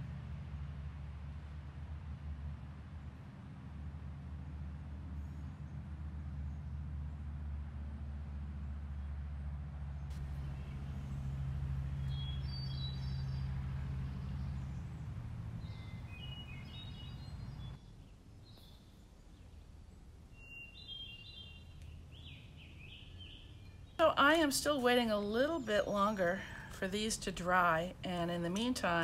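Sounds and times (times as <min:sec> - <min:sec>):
low steady rumble: 0:00.0 - 0:29.0
birds chirping: 0:10.1 - 0:29.0.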